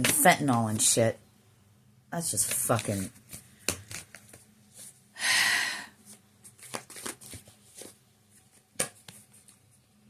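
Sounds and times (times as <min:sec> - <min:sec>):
cards riffle shuffling: 0:02.4 - 0:04.9, 0:06.1 - 0:09.7
cards clicking and tapping: 0:02.5 - 0:04.5, 0:06.5 - 0:09.6.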